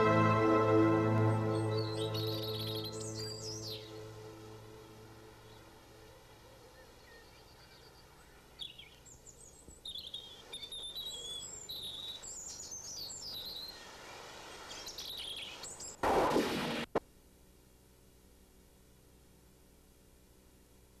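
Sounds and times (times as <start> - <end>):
faint steady hiss: 0.0 - 21.0
birds chirping and singing: 1.4 - 5.6.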